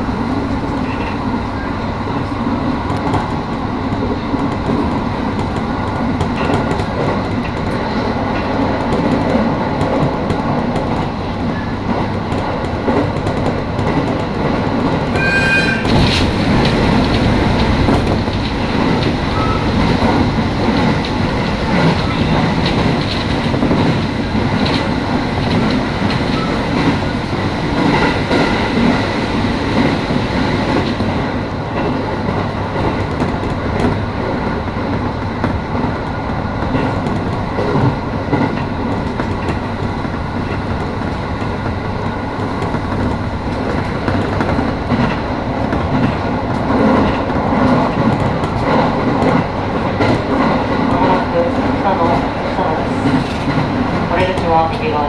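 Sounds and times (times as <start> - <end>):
train wheels rumbling on rails: 0.0 - 55.0
brief high tone: 15.2 - 15.8.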